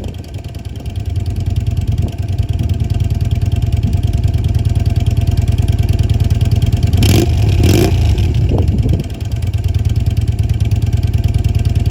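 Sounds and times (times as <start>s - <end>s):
motorcycle engine idling and revving: 0.0s - 11.9s.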